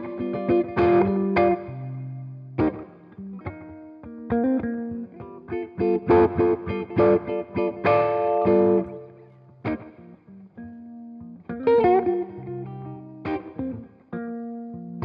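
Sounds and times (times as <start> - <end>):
electric guitar picked notes: 0.0 - 15.0
electric guitar strummed chords: 0.0 - 15.0.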